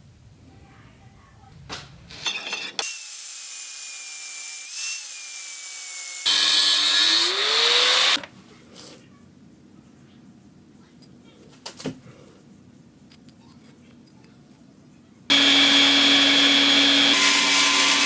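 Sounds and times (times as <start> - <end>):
power tool grinding steel: 2.8 - 8.2, 15.3 - 18.0.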